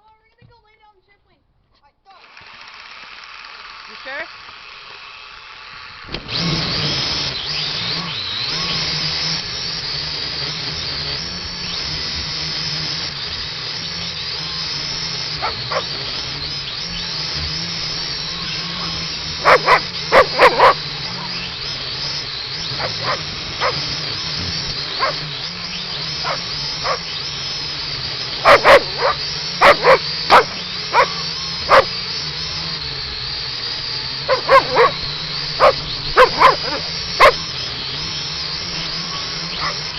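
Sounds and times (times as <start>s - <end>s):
drone propellers whining: 4.9s - 39.9s
dog barking: 15.4s - 15.9s, 19.4s - 20.8s, 22.8s - 23.8s, 25.0s - 25.2s, 26.2s - 27.0s, 28.4s - 31.9s, 34.3s - 35.0s, 35.6s - 37.4s, 39.5s - 39.9s.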